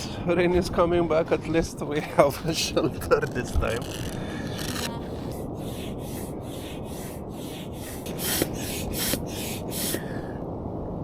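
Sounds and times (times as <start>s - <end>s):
wind rumble: 0.1s - 11.0s
air pump hissing strokes: 3.0s - 9.2s.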